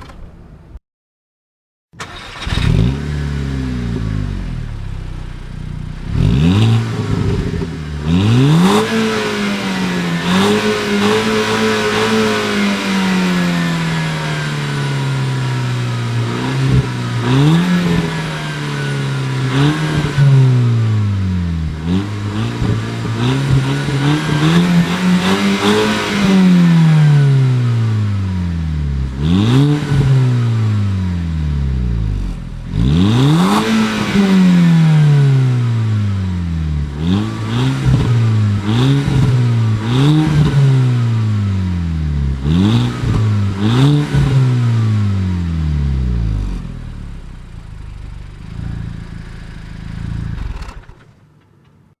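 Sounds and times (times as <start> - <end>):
car engine idling: 2.0 - 8.2, 44.9 - 51.9
car engine revving: 2.0 - 51.1.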